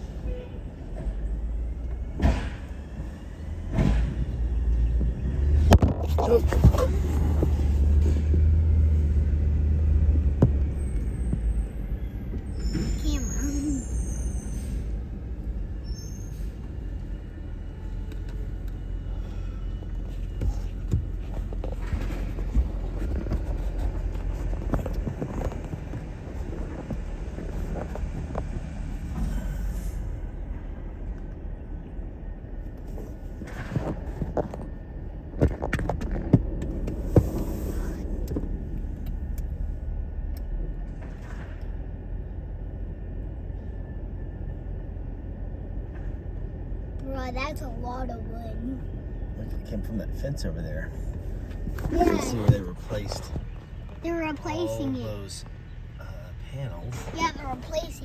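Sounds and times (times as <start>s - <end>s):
garbage truck engine rumbling: 0.0s - 58.0s.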